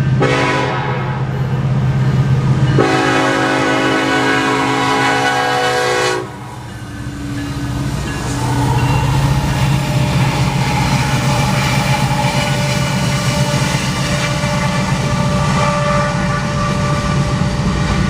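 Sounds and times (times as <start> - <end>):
diesel freight train rumble: 0.0 - 18.0
locomotive air horn: 0.2 - 1.2, 2.8 - 6.6, 8.3 - 18.0.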